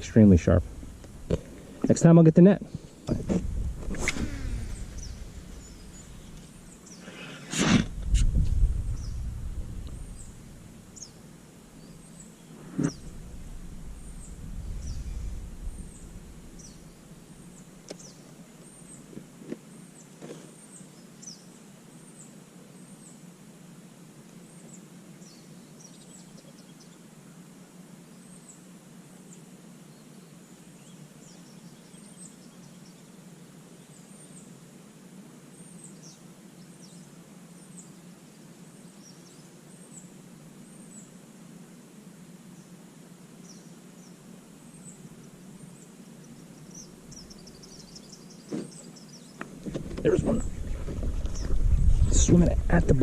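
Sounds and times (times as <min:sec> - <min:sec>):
faint low hum: 0:00.0 - 0:20.0
small birds chirping: 0:00.0 - 0:23.2, 0:24.5 - 0:27.1, 0:29.3 - 0:34.6, 0:35.5 - 0:41.2, 0:43.4 - 0:53.0
low rumble: 0:03.1 - 0:06.5, 0:07.8 - 0:11.0, 0:12.9 - 0:17.5, 0:50.0 - 0:53.0.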